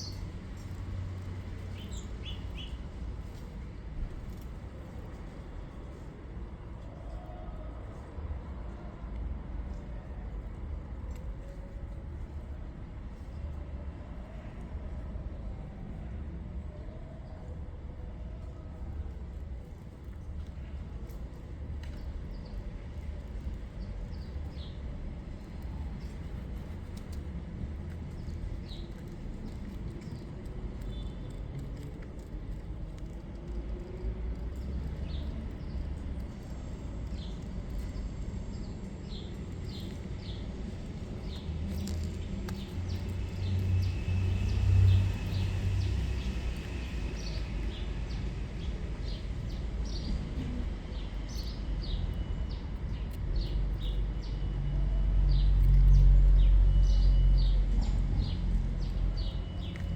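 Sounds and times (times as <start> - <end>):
small birds chirping: 1.6 - 2.8.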